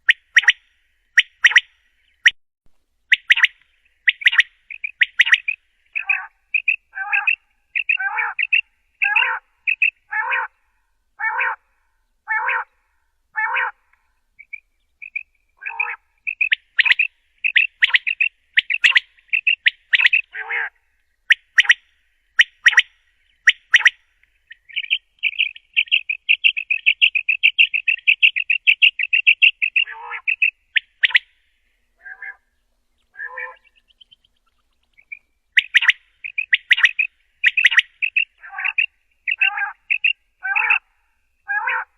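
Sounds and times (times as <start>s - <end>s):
quail calling: 0.0s - 0.6s, 1.2s - 2.4s, 3.1s - 10.6s, 11.2s - 11.6s, 12.2s - 12.8s, 13.4s - 31.4s, 32.0s - 41.9s.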